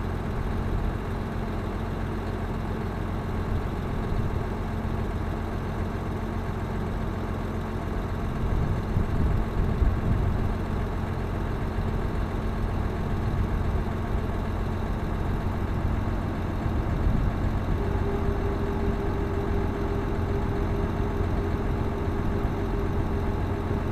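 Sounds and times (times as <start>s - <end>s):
tractor diesel engine running: 0.0s - 23.9s
higher steady tone: 17.4s - 23.9s.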